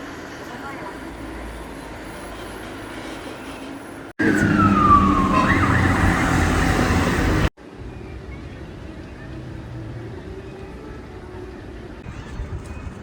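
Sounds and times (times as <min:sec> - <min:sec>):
street noise: 0:00.0 - 0:13.0
emergency siren wailing: 0:04.2 - 0:07.5
traffic rumble: 0:04.2 - 0:12.0.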